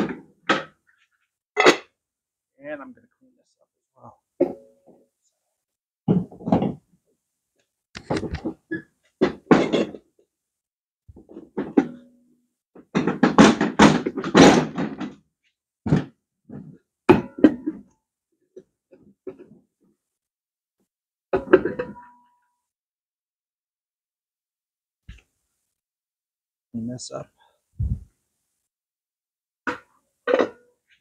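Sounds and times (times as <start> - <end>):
thunks of parts being handled: 8.0 - 10.1, 12.8 - 15.2.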